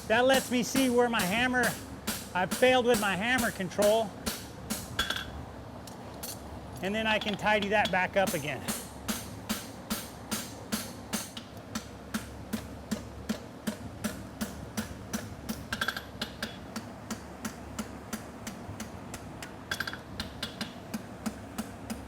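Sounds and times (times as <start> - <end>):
hammer blows on hot steel: 0.0 - 5.4, 6.9 - 22.0
cooling fan buzzing: 0.0 - 22.0.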